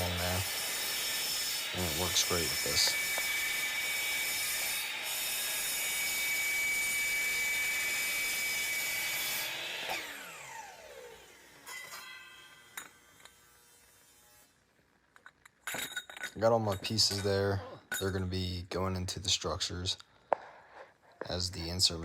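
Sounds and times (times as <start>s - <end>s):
saw blade spinning down: 0.0s - 14.5s
power saw cutting aluminum: 0.0s - 14.6s.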